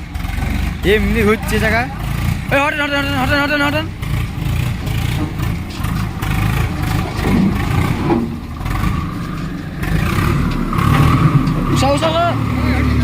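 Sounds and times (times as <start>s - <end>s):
tractor diesel engine rumbling: 0.0s - 13.0s.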